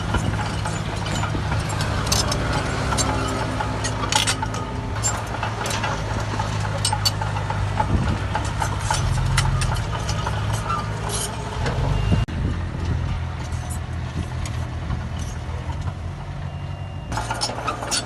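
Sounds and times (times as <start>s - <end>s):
metallic clanks and clicks: 0.0s - 11.8s, 12.8s - 16.0s, 17.1s - 18.0s
heavy diesel machinery running: 0.0s - 18.0s.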